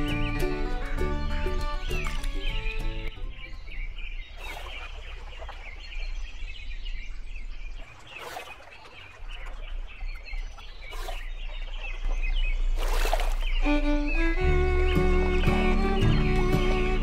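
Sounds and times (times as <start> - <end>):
birds chirping: 0.0 - 17.0
water splashes: 1.5 - 3.1, 4.2 - 6.5, 7.6 - 17.0.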